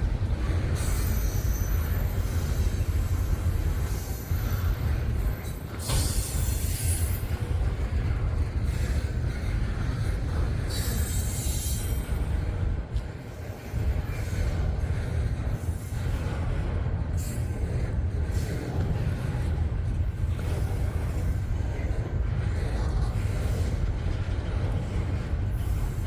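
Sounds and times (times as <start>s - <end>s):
train wheels rumbling on rail: 0.0s - 26.0s
high wheel squeal: 0.8s - 7.4s.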